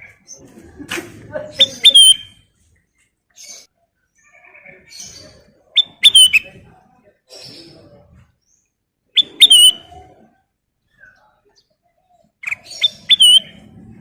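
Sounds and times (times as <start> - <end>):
faint bird chattering: 3.3 - 6.6, 9.2 - 13.7.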